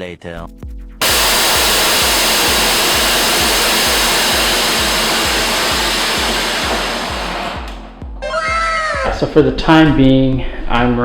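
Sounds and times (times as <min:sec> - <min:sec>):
background music with steady beat: 0:00.0 - 0:11.0
compressed air hissing: 0:01.0 - 0:08.1.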